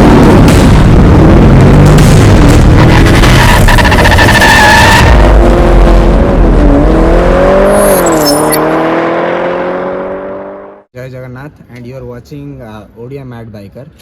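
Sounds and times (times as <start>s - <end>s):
motor vehicle engine: 0.0s - 10.9s.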